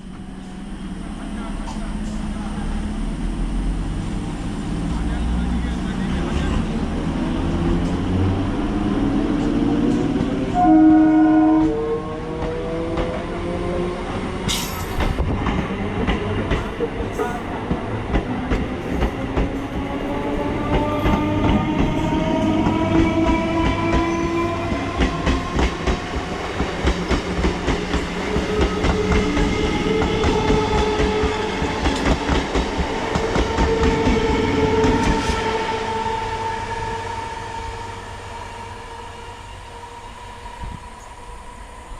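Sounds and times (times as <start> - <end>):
train horn blast: 10.4 - 12.3.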